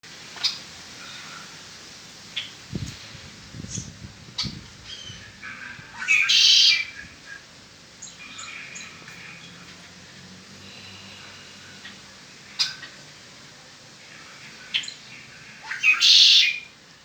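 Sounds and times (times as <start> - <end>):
blackbird singing buzzy trill: 3.6 - 9.5, 14.7 - 16.7.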